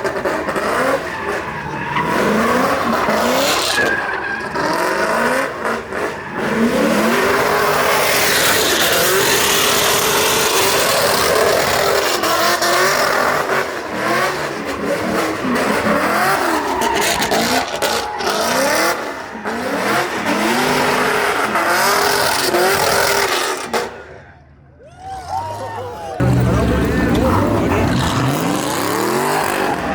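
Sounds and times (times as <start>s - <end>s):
car engine revving: 0.0s - 24.1s, 26.2s - 29.9s
tyres screeching: 26.2s - 29.9s.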